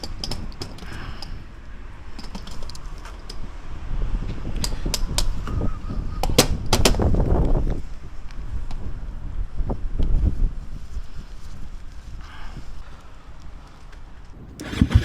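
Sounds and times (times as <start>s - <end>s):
low steady rumble: 14.3s - 15.0s.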